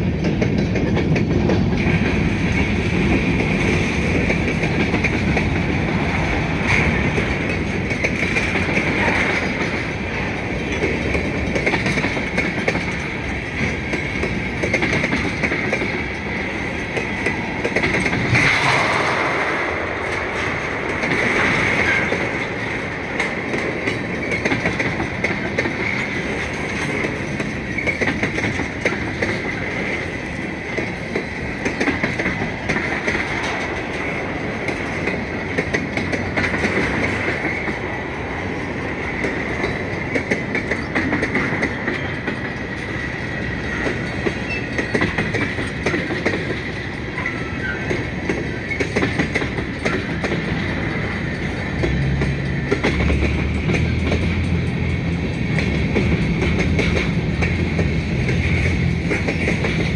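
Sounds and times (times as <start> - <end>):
clickety-clack over rail joints: 0.0 - 59.9
train wheels rumbling on rails: 0.0 - 59.9
high wheel squeal: 44.3 - 45.0.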